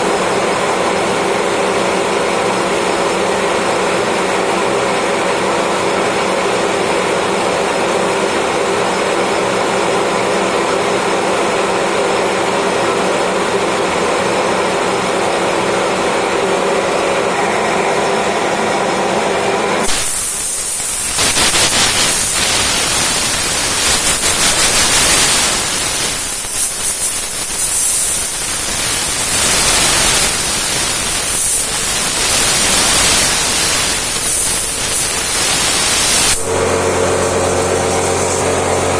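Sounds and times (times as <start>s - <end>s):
loud hiss: 19.8s - 36.6s.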